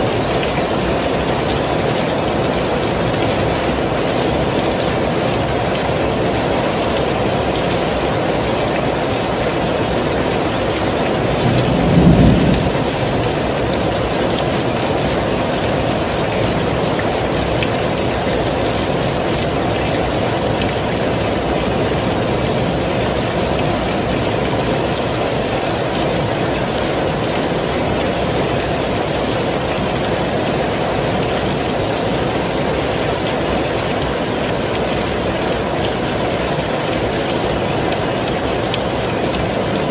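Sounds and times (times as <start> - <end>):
heavy rain hissing: 0.0 - 39.9
low rumble of thunder: 11.2 - 14.5.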